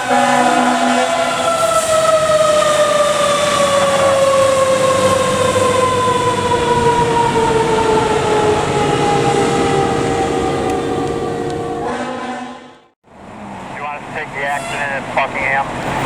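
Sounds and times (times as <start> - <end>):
moving truck noise: 0.0 - 16.0
mechanical siren winding down: 0.1 - 12.2.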